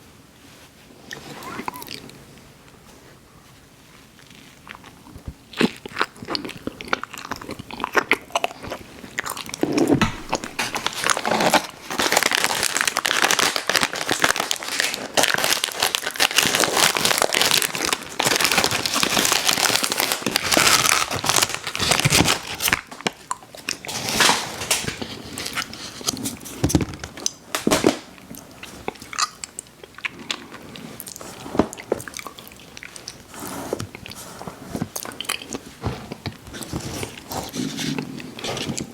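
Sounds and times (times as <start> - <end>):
biting and chewing ice cream: 4.2 - 24.0, 28.0 - 38.9.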